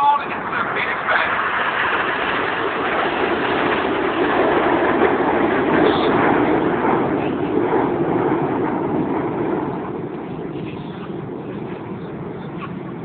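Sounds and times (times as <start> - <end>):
jet aircraft roar: 0.0 - 13.0.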